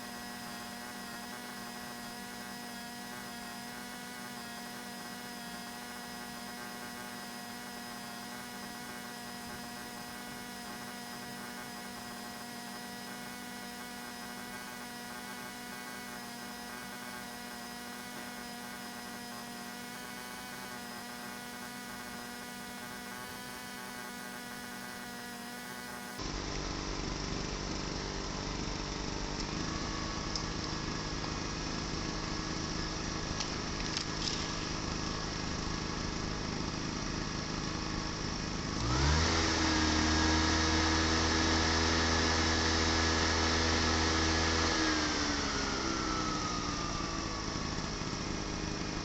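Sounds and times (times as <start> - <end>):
portable generator humming: 0.0 - 49.0
loud close engine: 26.3 - 49.0.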